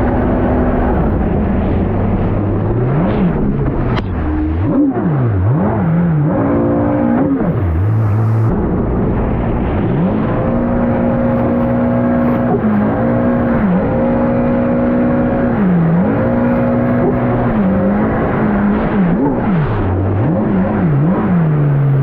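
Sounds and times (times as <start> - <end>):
steady rushing noise: 0.0 - 15.6
jet ski engine revving: 0.0 - 22.0.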